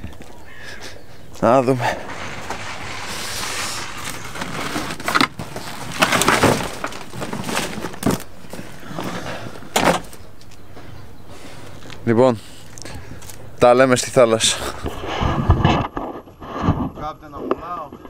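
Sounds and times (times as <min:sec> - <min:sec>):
rustling: 0:01.4 - 0:10.6
bags and equipment knocking: 0:03.8 - 0:09.1.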